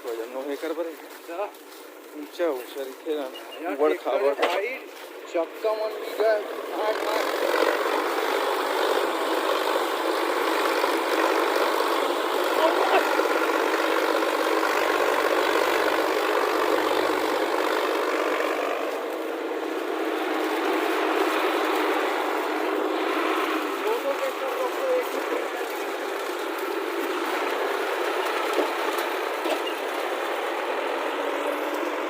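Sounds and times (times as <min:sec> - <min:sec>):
heavy diesel engine droning: 0:02.4 - 0:32.0.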